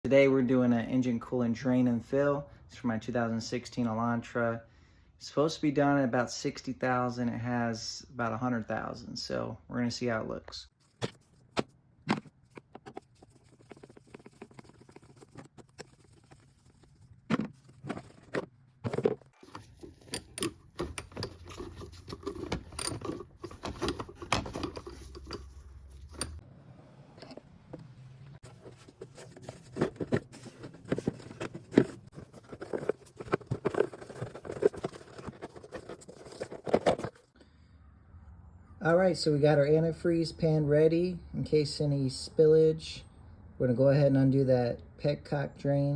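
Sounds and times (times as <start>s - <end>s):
hard objects clicking and knocking: 10.9s - 26.4s, 27.2s - 37.4s.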